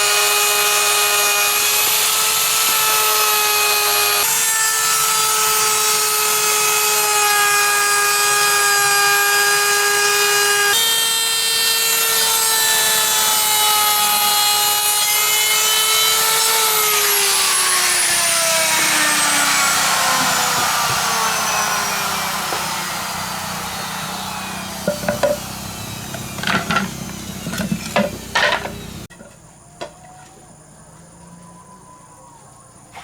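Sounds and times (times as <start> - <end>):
power saw motor winding down: 3.8 - 29.1
knocks: 24.8 - 25.5, 26.1 - 29.3.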